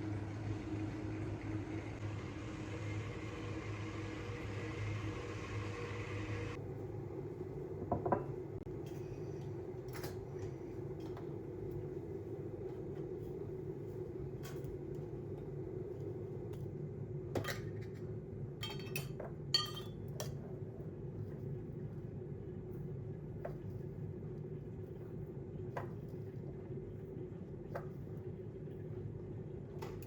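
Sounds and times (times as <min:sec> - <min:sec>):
dishes and cutlery clinking: 0:18.6 - 0:20.0.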